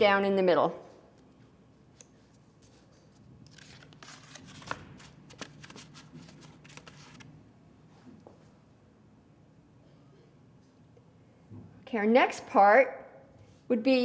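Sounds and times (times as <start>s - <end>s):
paper rustling and crackling: 2.6s - 7.3s.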